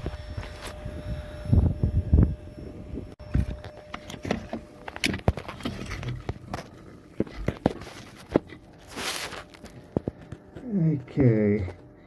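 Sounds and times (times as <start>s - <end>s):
faint thin whine: 0.0s - 12.0s
handling knocks and clicks: 3.2s - 10.6s.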